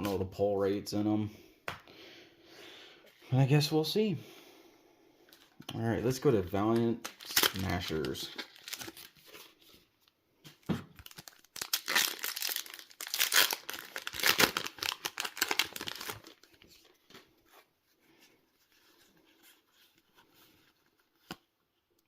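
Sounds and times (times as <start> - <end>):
faint rustling of cards: 5.2 - 22.0
wrapper tearing and crinkling: 7.0 - 9.4, 11.0 - 16.6.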